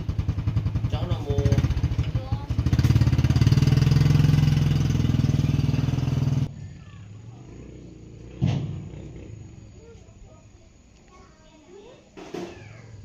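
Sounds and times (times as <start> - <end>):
small engine running: 0.0 - 9.8.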